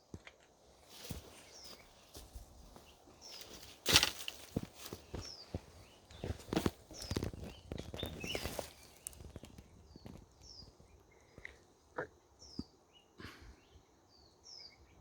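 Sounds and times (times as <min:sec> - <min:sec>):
small birds calling: 0:01.0 - 0:15.0.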